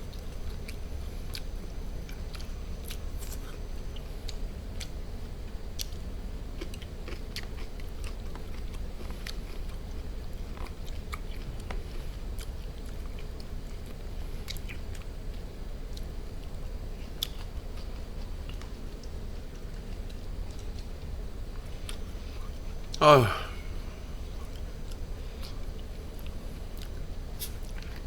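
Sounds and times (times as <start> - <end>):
steady low hum: 23.0 - 25.3.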